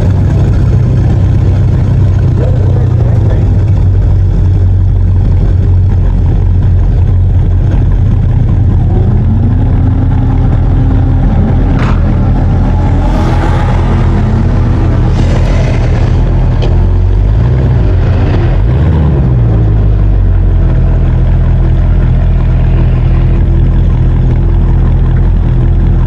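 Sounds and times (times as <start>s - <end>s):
car exhaust deep rumble: 0.0s - 26.0s
rising tone: 8.4s - 24.5s.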